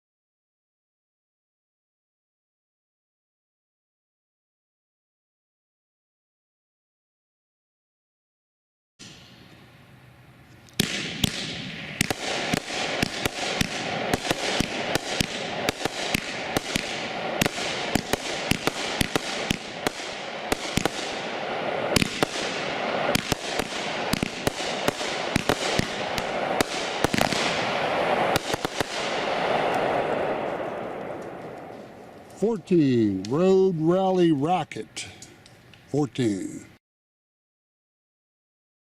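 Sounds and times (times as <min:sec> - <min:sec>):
fireworks crackling hiss: 0:09.0 - 0:34.4
firework shell bursts: 0:10.8 - 0:29.9.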